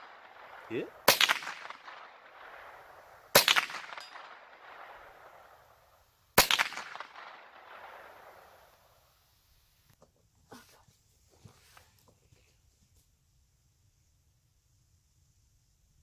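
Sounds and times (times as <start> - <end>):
rifle shots with echo: 0.0 - 9.0.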